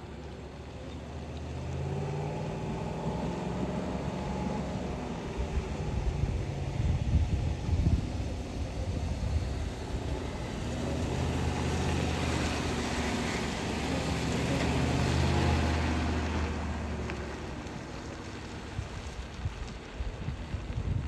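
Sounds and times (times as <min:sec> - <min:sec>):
truck engine hum: 0:00.0 - 0:21.0
tyre and wind noise: 0:04.9 - 0:15.4, 0:17.1 - 0:21.0.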